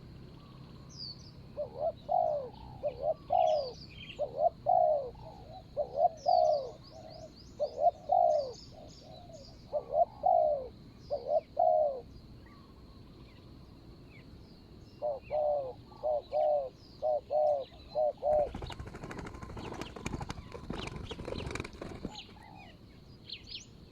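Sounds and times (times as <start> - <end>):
small birds chirping faintly: 0.0 - 23.9
doves cooing: 1.4 - 12.8, 15.0 - 22.8.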